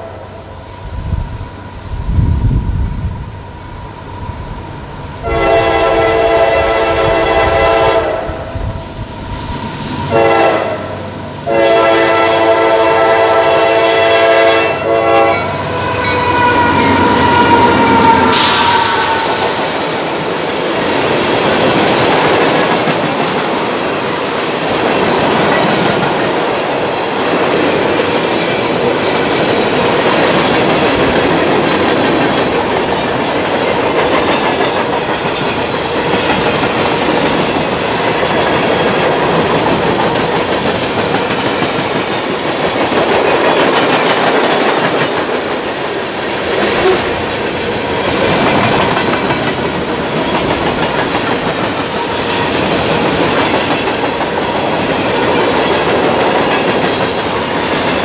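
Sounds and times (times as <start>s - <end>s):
freight train rolling rumble: 0.0s - 58.0s
wheels clacking over rail joints: 19.4s - 45.8s.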